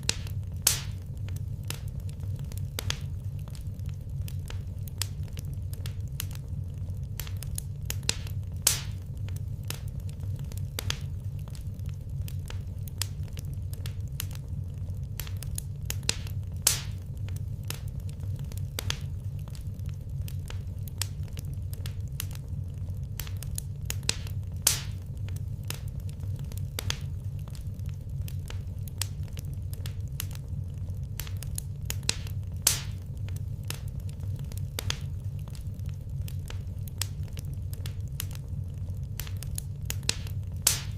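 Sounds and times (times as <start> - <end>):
loud fire snap: 0.0 - 40.9
low rumble: 0.0 - 40.9
wood fire crackling: 0.0 - 40.9.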